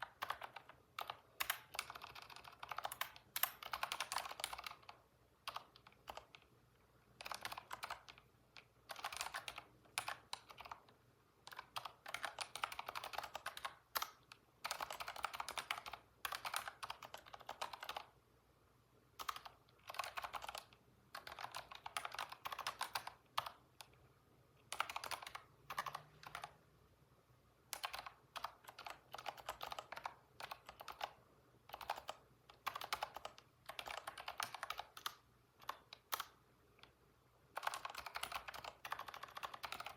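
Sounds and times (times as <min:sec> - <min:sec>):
typing on computer keyboard: 0:00.0 - 0:06.5, 0:07.2 - 0:18.2, 0:19.2 - 0:24.0, 0:24.6 - 0:26.6, 0:27.7 - 0:39.9.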